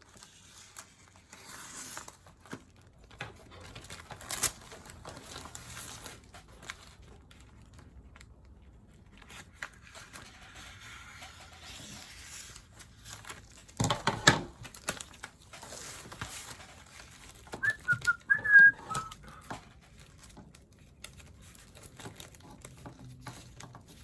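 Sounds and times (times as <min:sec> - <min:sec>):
plastic liner crinkling: 0:12.5 - 0:24.0.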